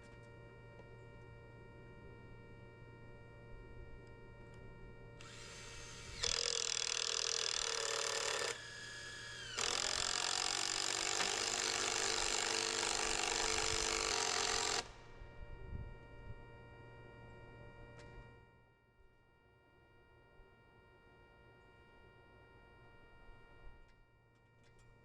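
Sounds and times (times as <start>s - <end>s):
power drill running: 5.2s - 15.1s.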